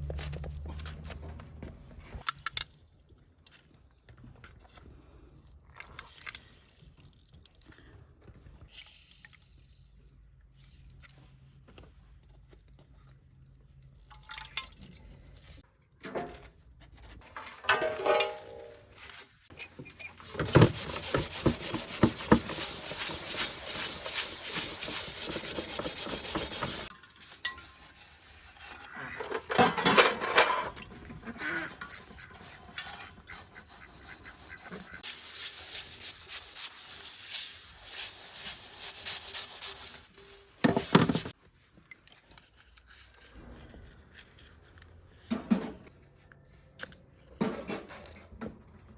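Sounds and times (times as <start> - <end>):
dishes clattering: 17.4 - 18.8, 29.3 - 30.8
hand scrubbing dishes with water: 19.5 - 42.1.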